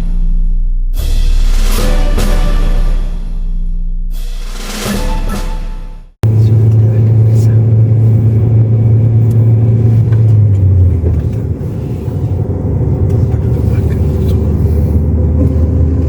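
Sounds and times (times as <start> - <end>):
vehicle engine droning: 6.2 - 16.0.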